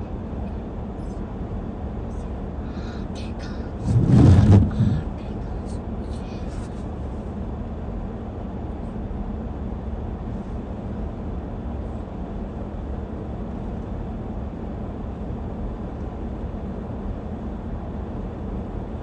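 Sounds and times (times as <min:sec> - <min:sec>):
car engine rumbling: 0:02.2 - 0:06.7.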